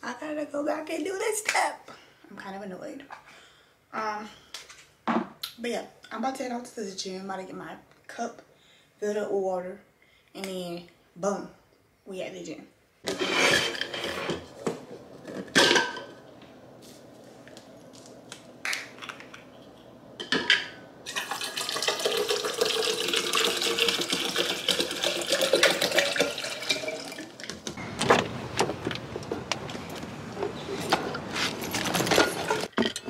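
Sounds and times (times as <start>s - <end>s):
water running into cup: 21.0s - 27.4s.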